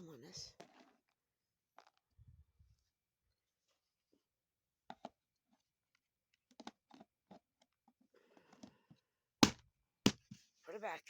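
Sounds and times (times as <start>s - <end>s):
sharp knock: 9.4s - 10.4s.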